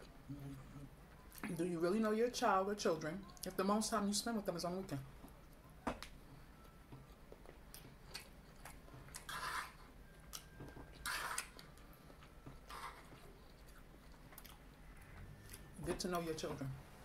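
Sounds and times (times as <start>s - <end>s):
quiet chewing: 5.2s - 15.7s
fork scraping on plate: 9.2s - 9.9s, 11.0s - 11.5s.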